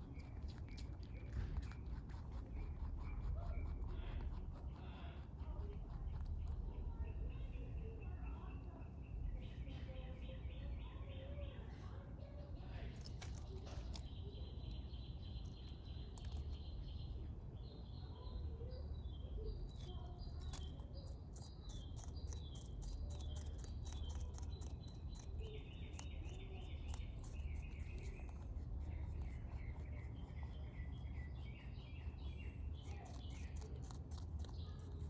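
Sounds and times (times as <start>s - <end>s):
dry irregular clicks: 13.0s - 14.2s
steady low rumble: 18.2s - 35.0s.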